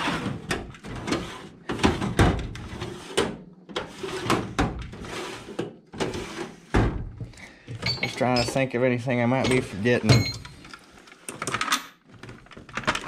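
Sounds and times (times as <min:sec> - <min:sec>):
metal tools clanking: 0:07.7 - 0:08.7, 0:09.4 - 0:10.7.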